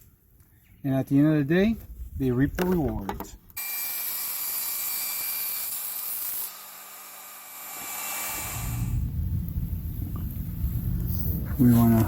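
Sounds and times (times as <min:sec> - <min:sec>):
power saw cutting wood: 0:03.6 - 0:09.0
low rumble: 0:08.4 - 0:12.0.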